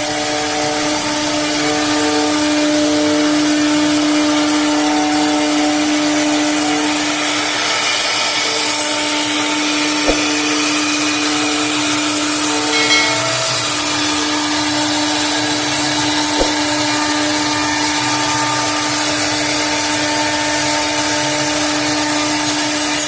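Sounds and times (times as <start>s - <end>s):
wood router cutting wood: 0.0s - 23.0s
single click: 10.1s - 10.3s, 16.4s - 16.6s.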